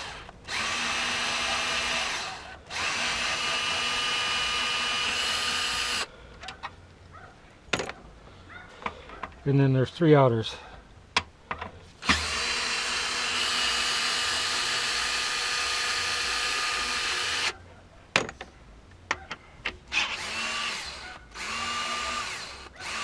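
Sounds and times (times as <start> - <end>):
power drill whining: 0.0 - 6.1, 12.0 - 17.6, 19.9 - 23.0
drill clicks: 0.0 - 6.6, 12.0 - 17.6, 19.9 - 23.0.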